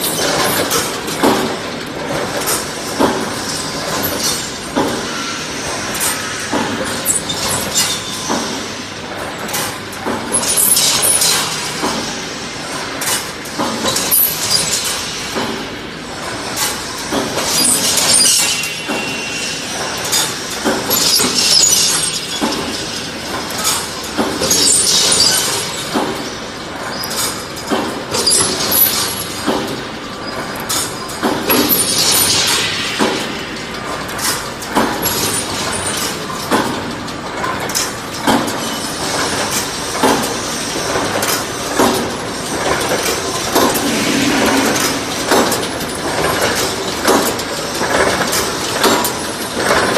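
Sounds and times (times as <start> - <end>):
welding machine metallic clatter: 0.0 - 49.9
sharp machine burst: 43.2 - 46.8.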